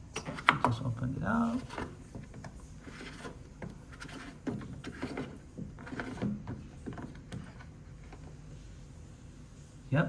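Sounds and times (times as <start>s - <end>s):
plastic clicks and knocks: 0.1s - 0.8s, 1.6s - 8.4s.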